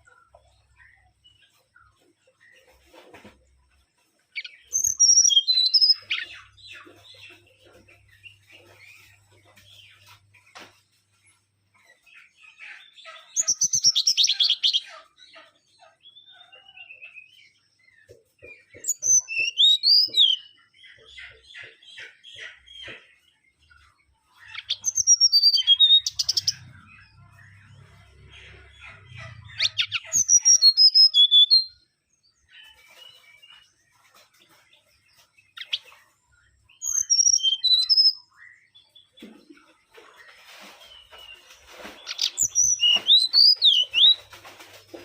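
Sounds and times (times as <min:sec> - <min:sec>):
bird chattering: 0:13.2 - 0:15.1, 0:24.4 - 0:31.7, 0:36.8 - 0:38.1, 0:42.0 - 0:44.3.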